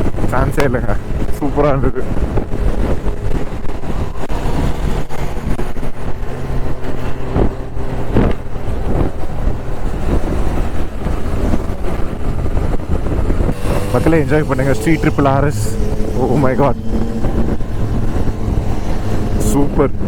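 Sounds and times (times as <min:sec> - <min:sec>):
wind rumble on microphone: 0:00.0 - 0:20.0
motorcycle engine: 0:00.9 - 0:20.0.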